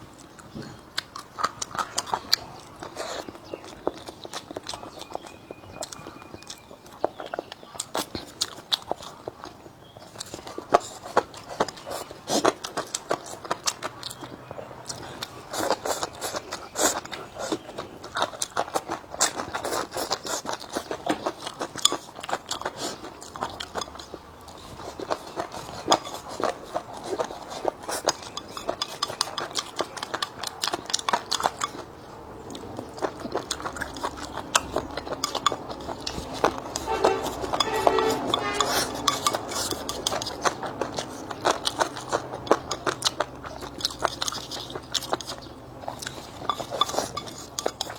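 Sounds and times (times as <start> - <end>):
chewing and crunching: 0.0 - 47.9
utensils clicking on plates: 28.1 - 29.8, 34.6 - 40.8, 46.4 - 47.9.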